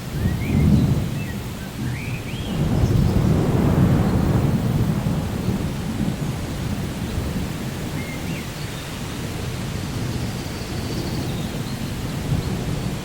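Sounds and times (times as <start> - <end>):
steady rain: 0.0 - 13.0
rolling thunder: 0.1 - 8.3.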